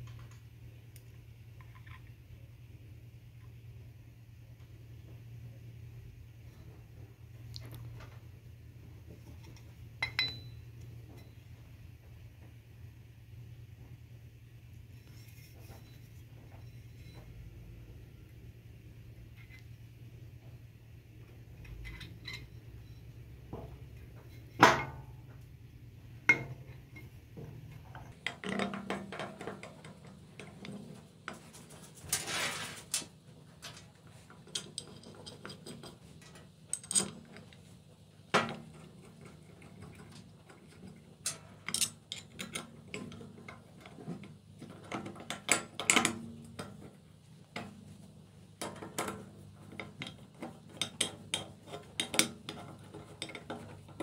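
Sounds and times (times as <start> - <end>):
metal tools clinking and scraping: 10.0 - 11.4, 21.6 - 23.0, 31.4 - 37.5, 41.3 - 43.3.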